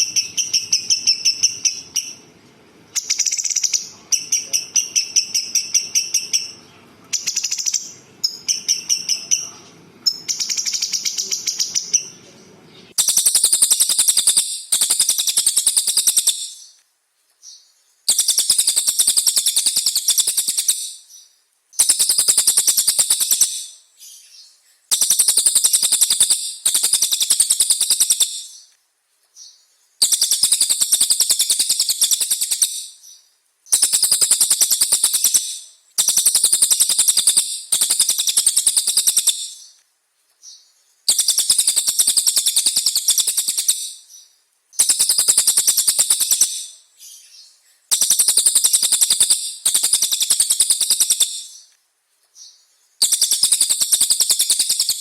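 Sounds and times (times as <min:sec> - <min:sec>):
songbird rattling trill: 0:00.0 - 0:02.3, 0:02.9 - 0:12.2, 0:12.8 - 0:16.8, 0:17.5 - 0:28.7, 0:29.4 - 0:39.8, 0:40.5 - 0:51.7, 0:52.4 - 0:55.0.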